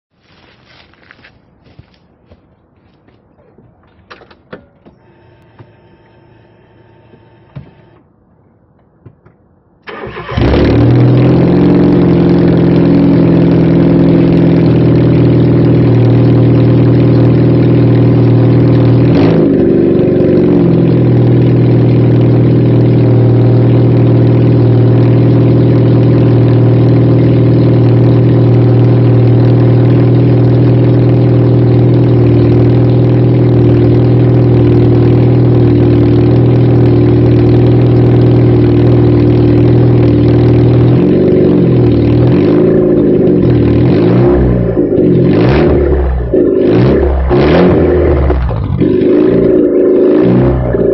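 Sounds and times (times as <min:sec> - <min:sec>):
loud car engine idling: 0:10.2 - 0:50.9.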